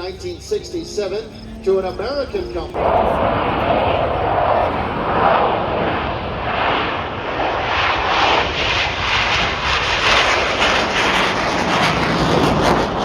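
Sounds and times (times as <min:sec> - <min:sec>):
aircraft engines flying past: 0:00.0 - 0:13.0.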